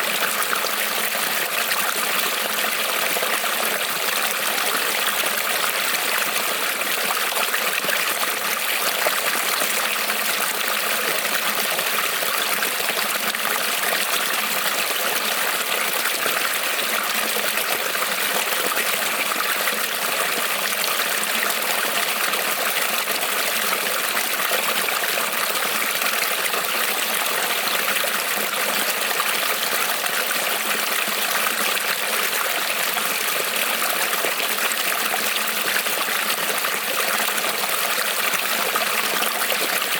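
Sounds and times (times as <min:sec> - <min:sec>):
creek trickling over stones: 0:00.0 - 0:39.9.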